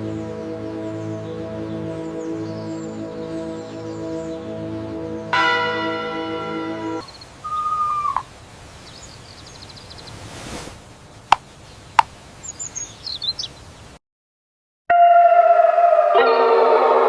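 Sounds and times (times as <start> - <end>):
birds chirping: 0.0 - 14.0
faint background hiss: 7.0 - 14.0.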